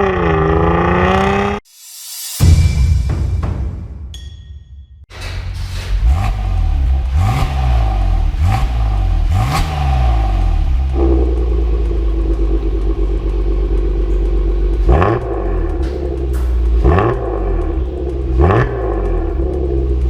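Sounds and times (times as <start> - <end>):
car engine revving: 0.0 - 1.6, 5.1 - 20.0
engine idle drone: 5.1 - 20.0.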